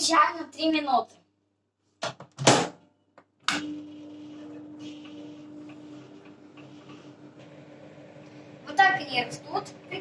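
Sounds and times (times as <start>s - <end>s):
microwave oven humming: 3.2s - 10.0s.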